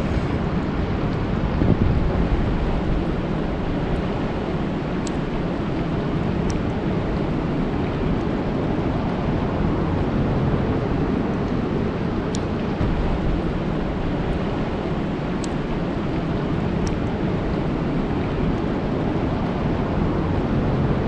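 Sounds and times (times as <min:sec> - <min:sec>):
rain falling on a lake: 0:02.0 - 0:20.6
faint high ticks: 0:15.4 - 0:16.2.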